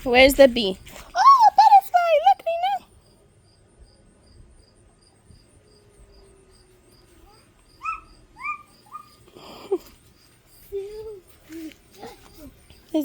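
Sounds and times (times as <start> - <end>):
cricket chirping: 0.0 - 13.0
high rising-falling calls: 7.2 - 9.4.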